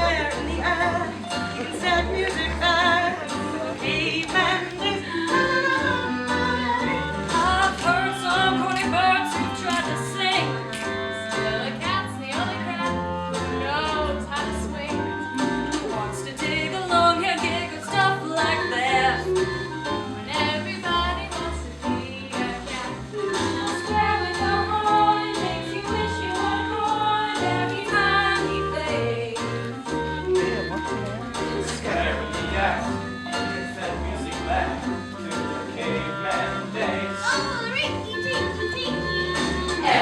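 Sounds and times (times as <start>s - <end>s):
group singing in harmony: 0.0s - 11.9s, 13.4s - 40.0s
percussion: 0.0s - 40.0s
walking bass line: 18.0s - 40.0s.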